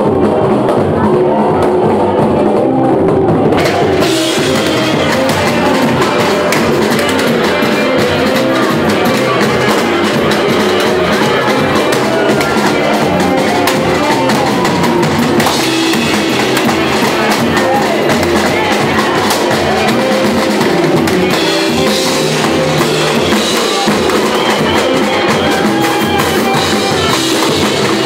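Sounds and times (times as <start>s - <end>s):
drums and percussion beat: 0.0s - 28.0s
samba band playing: 0.0s - 28.0s.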